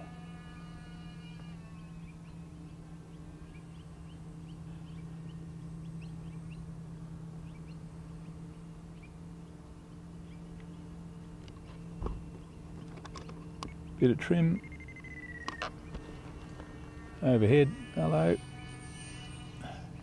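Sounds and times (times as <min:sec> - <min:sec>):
steady low hum: 0:00.0 - 0:20.0
small birds chirping: 0:01.7 - 0:16.9.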